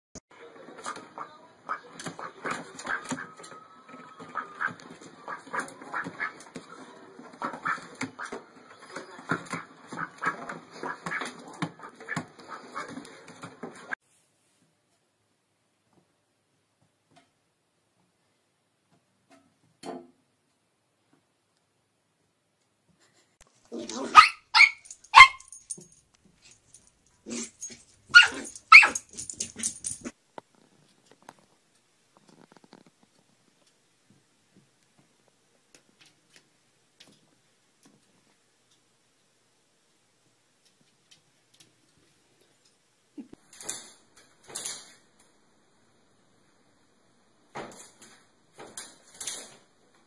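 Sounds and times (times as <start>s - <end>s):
duck quacking: 0.8s - 3.4s, 4.1s - 6.6s, 7.3s - 8.5s, 9.1s - 13.0s
puppy barking: 23.7s - 25.6s, 27.3s - 29.3s.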